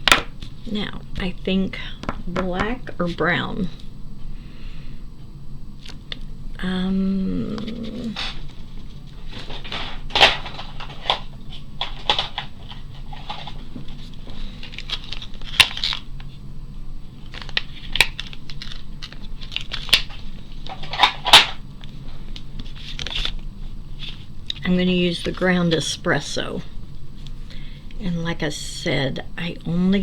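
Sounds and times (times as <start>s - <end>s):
rustling handling noise: 7.6s - 28.0s.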